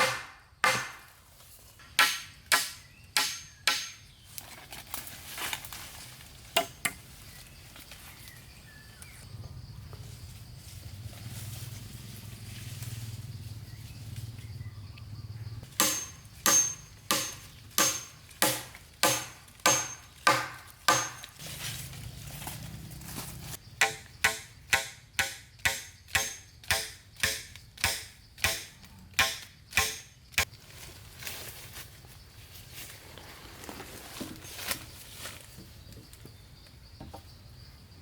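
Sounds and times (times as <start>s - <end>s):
blade chopping wood: 0.0s - 1.1s, 1.8s - 4.1s, 15.7s - 21.4s, 23.8s - 30.5s.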